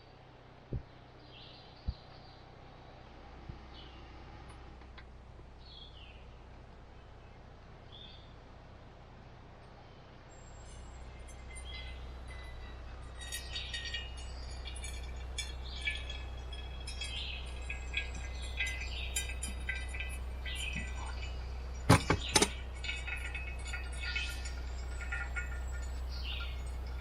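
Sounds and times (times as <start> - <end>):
low steady rumble: 0.0 - 27.0
birds chirping: 9.8 - 27.0.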